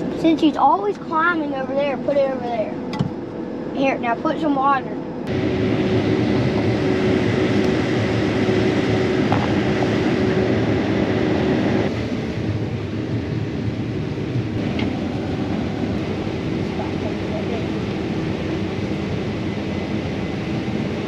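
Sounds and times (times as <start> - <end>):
combine harvester hum: 0.0 - 21.0
faint steady whine: 0.0 - 21.0.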